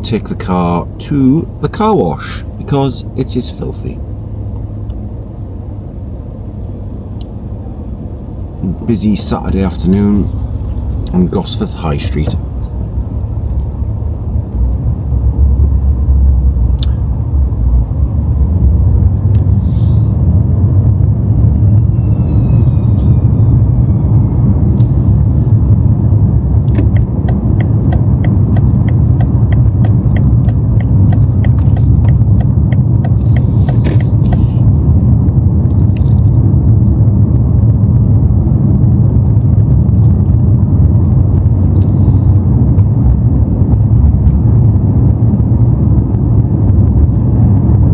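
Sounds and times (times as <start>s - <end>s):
car engine and road noise: 0.0s - 47.9s
regular ticking: 26.6s - 34.4s.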